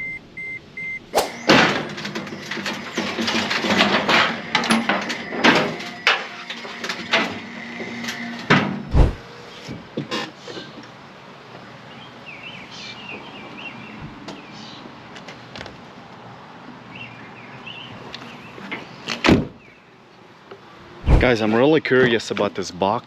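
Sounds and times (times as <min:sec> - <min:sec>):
vehicle door shutting: 0:08.5 - 0:09.2.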